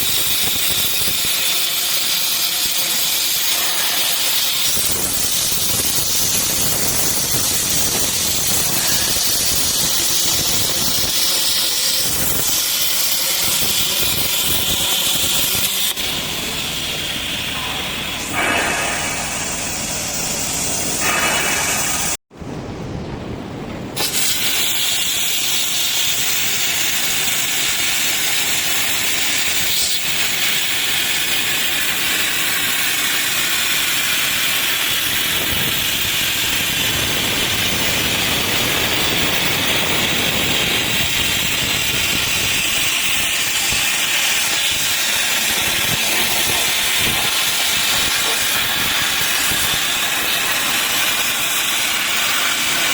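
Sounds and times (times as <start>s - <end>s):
plasma torch hissing: 0.0s - 22.2s, 24.0s - 52.9s.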